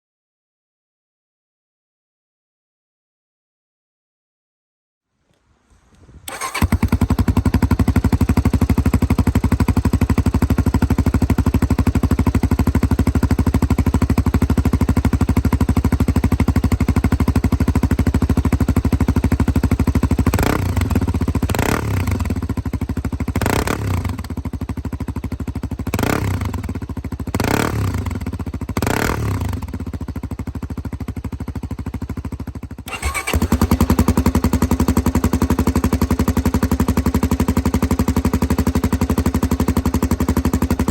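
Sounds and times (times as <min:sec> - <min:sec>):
motorcycle engine idling and revving: 0:06.3 - 0:40.9.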